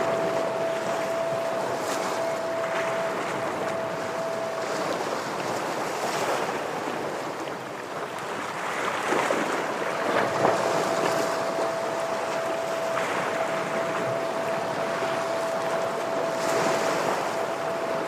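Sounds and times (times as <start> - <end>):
thin high tone: 0.0 - 6.0, 10.1 - 18.0
waves breaking on rocks: 1.6 - 18.0.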